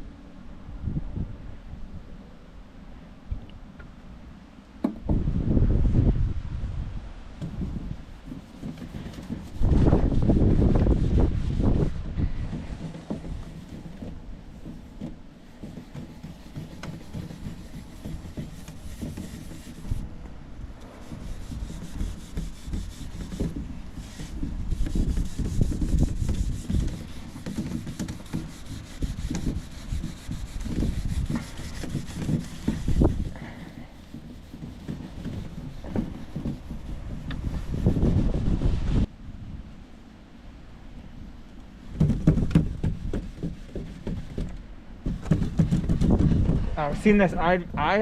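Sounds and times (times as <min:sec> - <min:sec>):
steel wool scrubbing wood: 0:07.4 - 0:38.4, 0:41.9 - 0:47.3.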